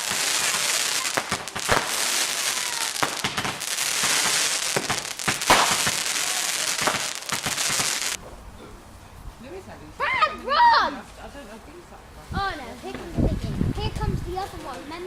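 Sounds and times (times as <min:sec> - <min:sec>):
firework hissing and crackling: 0:00.0 - 0:08.2
firework sharp pops: 0:00.0 - 0:08.2.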